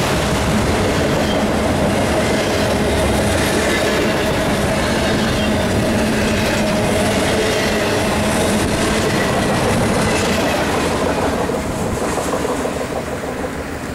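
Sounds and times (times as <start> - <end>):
freight train wheels clattering: 0.0 - 13.9.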